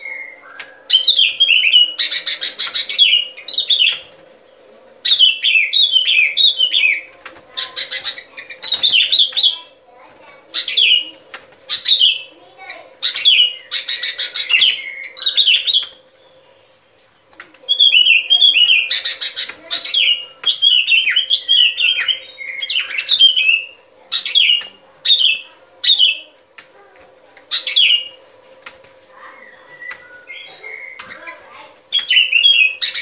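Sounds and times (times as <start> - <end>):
faint steady hum: 0.0 - 33.0
bulbul chattering chirps: 28.9 - 33.0.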